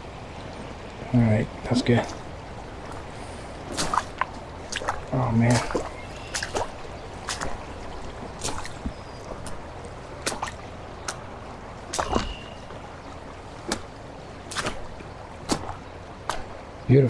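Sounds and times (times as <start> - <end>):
river water rushing: 0.0 - 17.0
small water splashes: 0.0 - 17.0.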